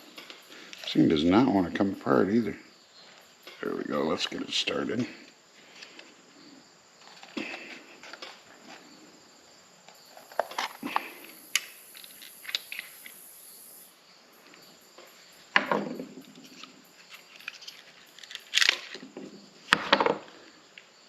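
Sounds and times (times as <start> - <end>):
plastic parts clicking and rattling: 16.4 - 19.0.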